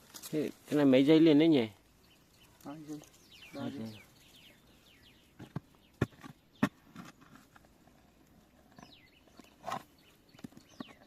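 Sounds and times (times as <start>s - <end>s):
birds whistling: 1.9s - 6.8s, 8.7s - 11.0s
digging tool striking soil: 5.4s - 7.7s.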